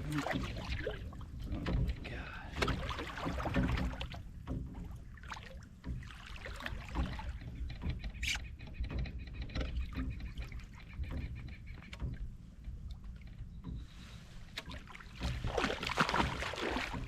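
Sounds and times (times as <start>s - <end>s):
water splashing against kayak: 0.0s - 17.0s.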